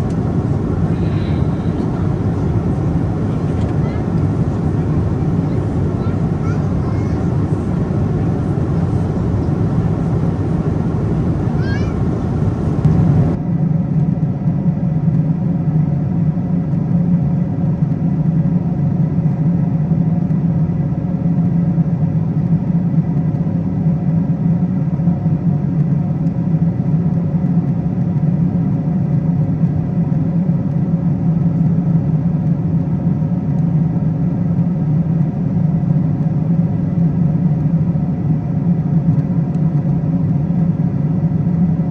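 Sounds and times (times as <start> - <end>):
airplane cabin engine drone: 0.0 - 13.4.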